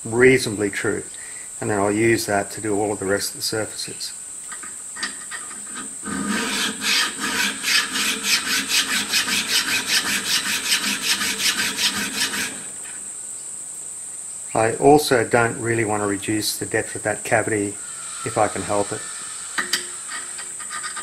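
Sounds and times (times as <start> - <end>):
metal rasping on a file: 5.7 - 12.7.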